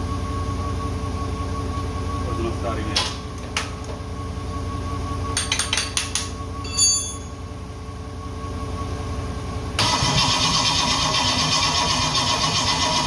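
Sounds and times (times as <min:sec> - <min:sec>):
high ringing clink: 0:05.4 - 0:07.5
engine starting and running: 0:08.6 - 0:13.0.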